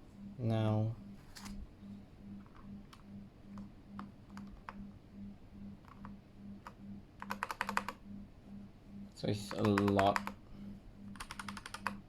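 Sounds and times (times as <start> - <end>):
pulsing low hum: 0.0 - 7.2
mechanical keyboard clicks: 7.2 - 8.0, 9.5 - 10.4, 11.2 - 12.0.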